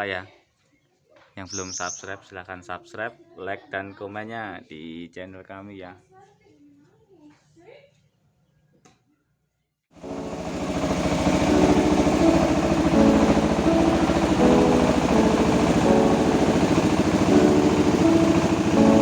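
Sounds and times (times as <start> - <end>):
music melody: 10.0 - 19.0
rice milling machine engine running: 10.0 - 19.0.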